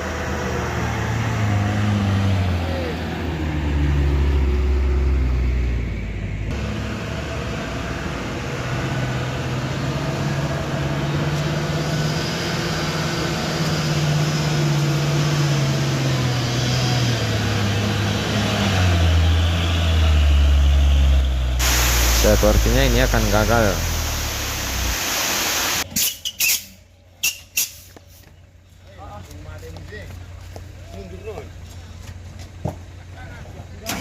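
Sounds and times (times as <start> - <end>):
truck diesel engine labouring: 6.2 - 25.0.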